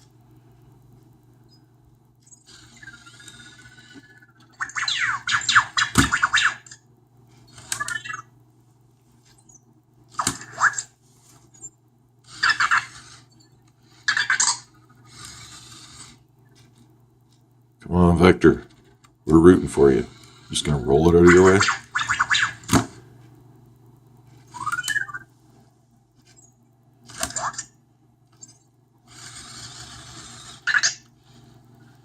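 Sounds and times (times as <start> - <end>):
robot electronic sounds and whirs: 7.5 - 8.3, 24.4 - 25.3, 28.4 - 31.5.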